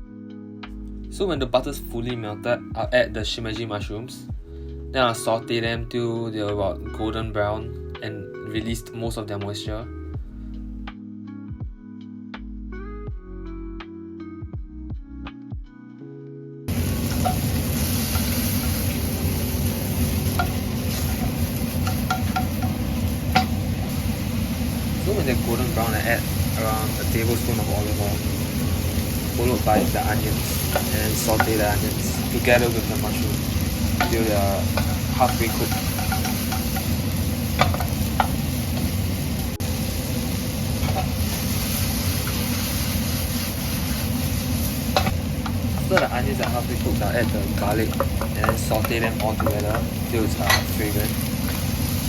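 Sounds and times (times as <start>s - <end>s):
mushrooms sizzling in a frying pan: 16.7s - 52.0s
utensil clicking against pan: 20.3s - 23.6s, 33.9s - 37.0s, 45.0s - 50.8s.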